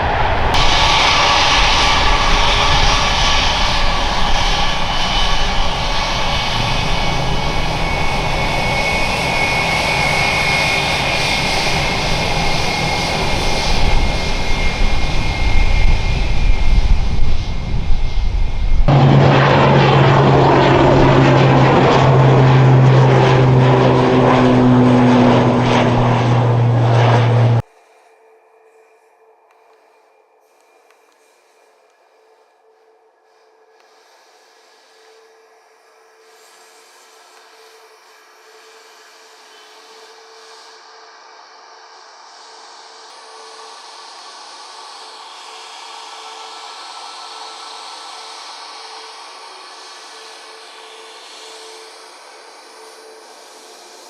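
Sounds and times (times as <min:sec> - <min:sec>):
airliner engines whining: 0:00.0 - 0:27.6, 0:42.2 - 0:54.0
aircraft engine low hum: 0:00.0 - 0:27.7, 0:37.5 - 0:54.0.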